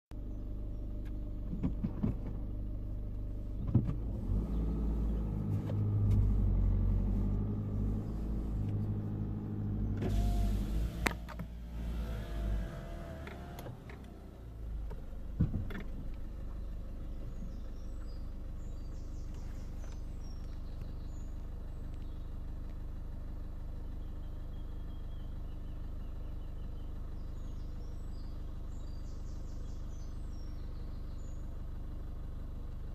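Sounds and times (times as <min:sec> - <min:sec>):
car engine idling: 0:00.2 - 0:32.9
birds chirping: 0:06.8 - 0:11.1, 0:16.1 - 0:22.9, 0:23.6 - 0:31.7
thump: 0:15.4 - 0:15.8.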